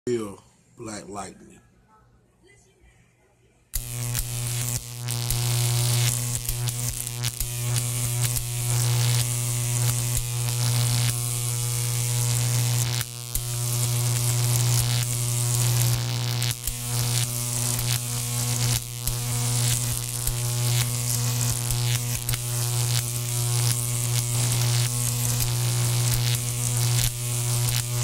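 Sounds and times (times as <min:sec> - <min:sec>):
electrical buzzing hum: 0:03.8 - 0:28.0.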